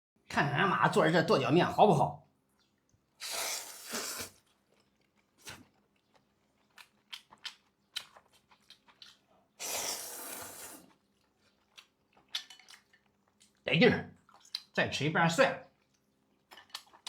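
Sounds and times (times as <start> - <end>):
slurping noodles: 3.1 - 4.6, 9.6 - 11.1
person chewing with wet mouth clicks: 4.8 - 9.3, 14.3 - 14.7.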